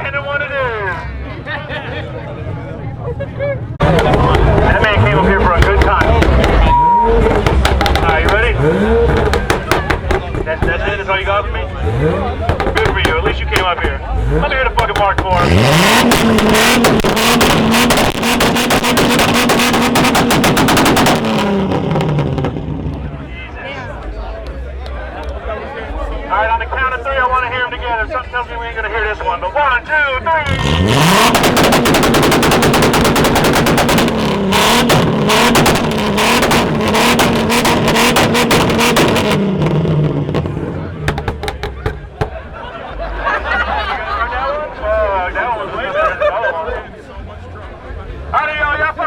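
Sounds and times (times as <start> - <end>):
car engine revving high: 3.8 - 23.8, 30.3 - 43.3
exhaust crackling pops: 3.8 - 24.1, 30.4 - 42.7.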